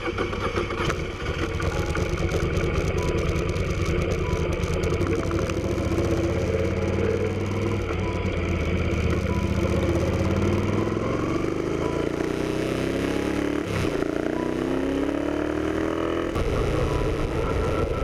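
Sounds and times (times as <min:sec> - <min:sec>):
motorcycle engine idling: 0:00.0 - 0:12.3.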